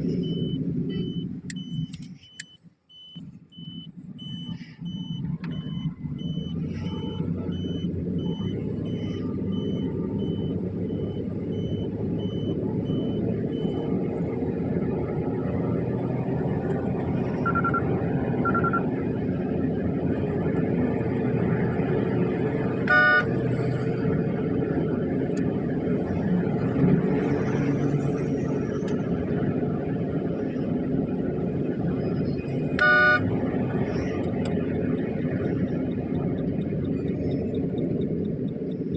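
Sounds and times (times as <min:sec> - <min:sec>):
car engine and road rumble: 0:00.0 - 0:38.9
electronic beeps: 0:00.1 - 0:13.9, 0:17.4 - 0:18.9, 0:22.9 - 0:23.2, 0:32.8 - 0:33.2
short electronic tones: 0:00.1 - 0:13.9, 0:17.4 - 0:18.8, 0:22.9 - 0:23.3, 0:32.8 - 0:33.2
car horn toot: 0:22.8 - 0:23.3, 0:32.8 - 0:33.2.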